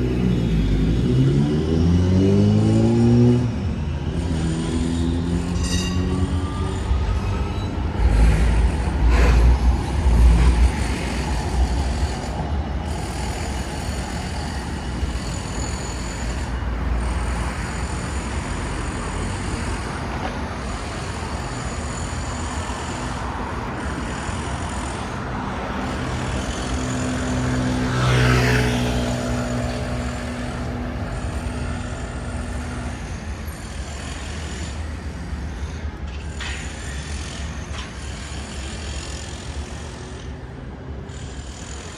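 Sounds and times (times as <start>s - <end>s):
road noise hum: 0.0s - 41.9s
vehicle passing close: 0.0s - 41.9s
heavy low rumble: 6.3s - 27.9s.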